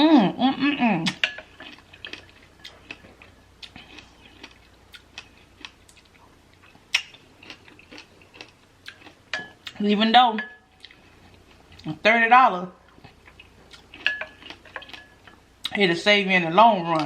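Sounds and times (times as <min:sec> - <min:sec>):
chewing fresh fruit: 0:01.0 - 0:09.9, 0:12.9 - 0:15.8.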